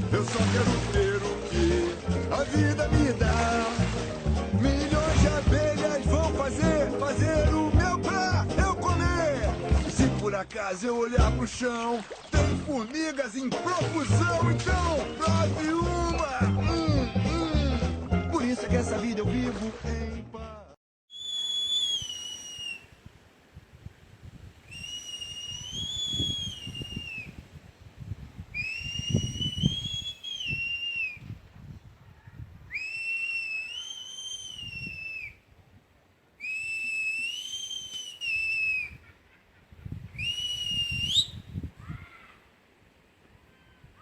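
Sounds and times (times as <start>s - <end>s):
person whistling long notes: 21.1s - 22.9s, 24.7s - 27.3s, 28.6s - 31.2s, 32.7s - 35.4s, 36.4s - 39.0s, 40.2s - 41.4s.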